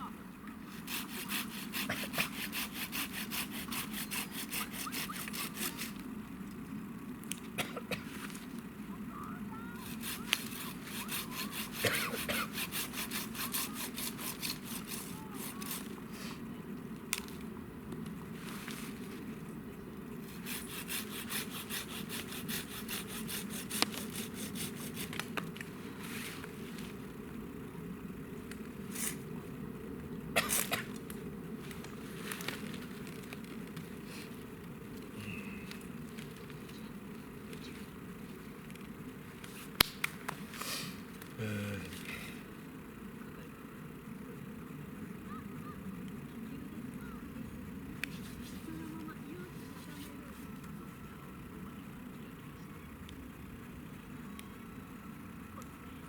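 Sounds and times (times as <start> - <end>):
hand saw cutting wood: 0.7 - 6.0, 9.8 - 16.0, 20.3 - 25.3
sharp crack: 39.8 - 40.4.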